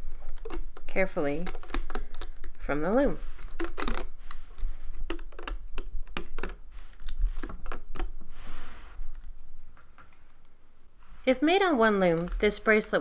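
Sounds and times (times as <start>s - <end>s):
short rustle: 8.3s - 9.2s.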